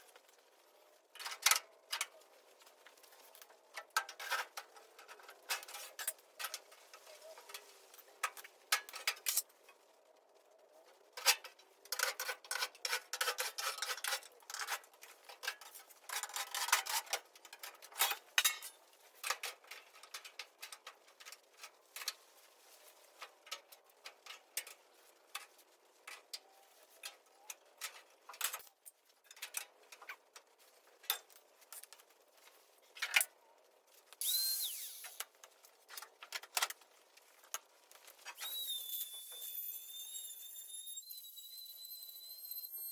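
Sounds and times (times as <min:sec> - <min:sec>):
brief high squeak: 0:38.3 - 0:42.9.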